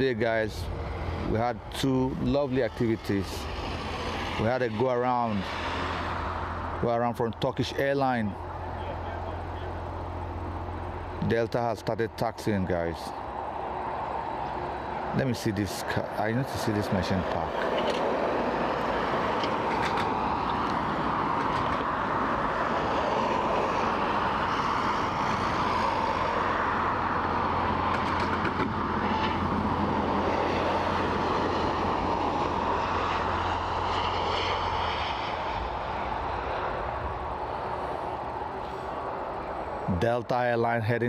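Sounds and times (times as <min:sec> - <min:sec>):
jet engines running: 0:00.0 - 0:40.3.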